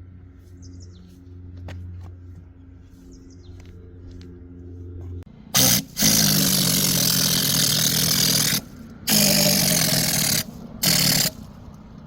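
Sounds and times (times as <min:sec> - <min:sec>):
power tool running: 0:05.5 - 0:11.5.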